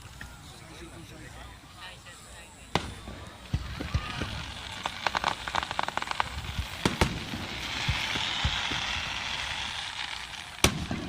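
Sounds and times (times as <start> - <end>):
fireworks crackling: 0.0 - 11.0
hissing crackle: 1.6 - 11.0
fireworks bangs: 2.6 - 11.0.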